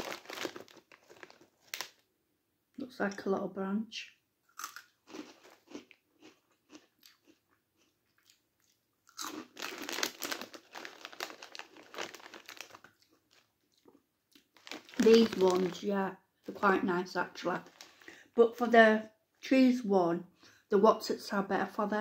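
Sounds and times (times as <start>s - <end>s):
crunching and chewing snack: 0.0s - 2.0s, 4.5s - 15.8s, 17.6s - 18.2s.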